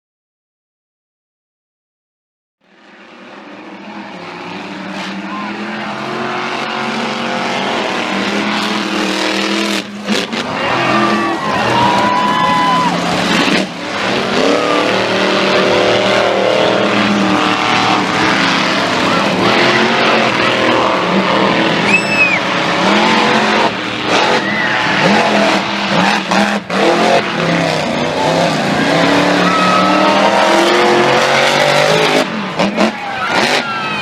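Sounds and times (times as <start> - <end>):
monster truck engine revving: 2.7 - 34.0
short high whistle: 21.9 - 22.4.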